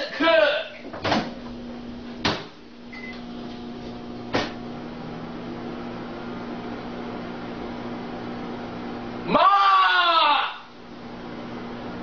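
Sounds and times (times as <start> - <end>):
microwave oven humming: 0.0 - 12.0
knocks: 2.2 - 2.6, 4.3 - 4.6.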